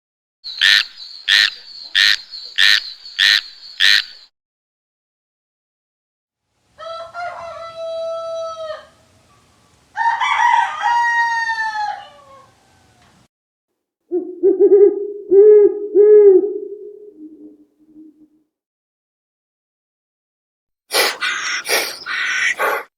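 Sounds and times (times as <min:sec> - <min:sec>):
rooster crowing: 0:06.8 - 0:09.1, 0:09.9 - 0:13.0
low pulsing animal call: 0:14.1 - 0:18.4, 0:20.9 - 0:22.9.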